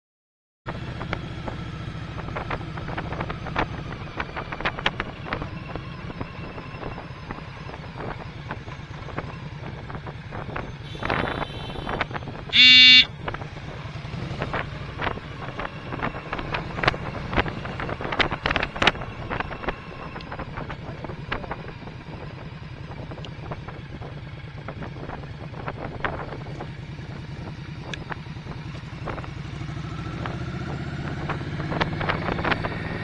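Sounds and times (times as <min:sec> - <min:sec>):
motorcycle engine running: 0:00.7 - 0:33.0
vehicle horn beep: 0:10.8 - 0:13.1.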